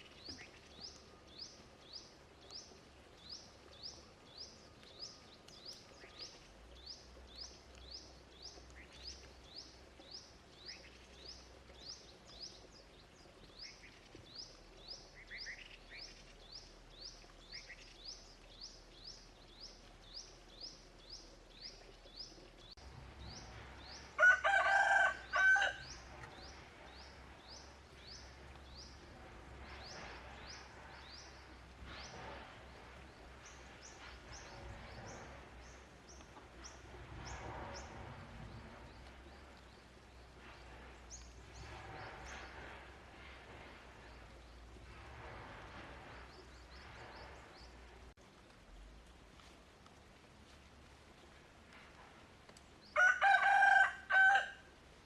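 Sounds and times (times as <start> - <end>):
rooster crowing: 24.2 - 26.0, 53.0 - 54.7.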